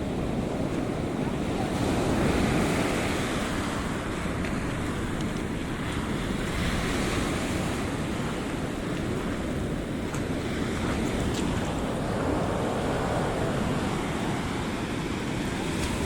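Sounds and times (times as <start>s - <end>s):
surf breaking on beach: 0.0s - 16.0s
wind buffeting microphone: 0.0s - 16.0s.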